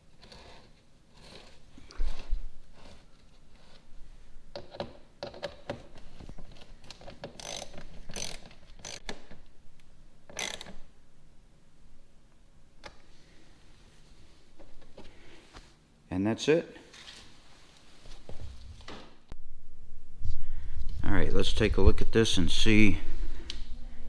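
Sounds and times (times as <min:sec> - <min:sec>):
hand ratchet clicking: 0:07.2 - 0:09.0, 0:10.3 - 0:10.8.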